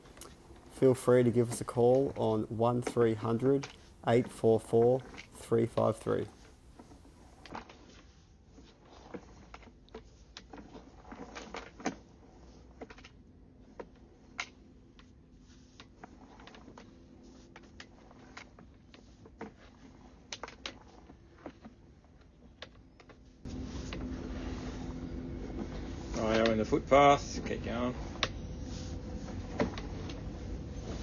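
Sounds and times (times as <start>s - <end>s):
low steady hum: 0.0s - 7.5s.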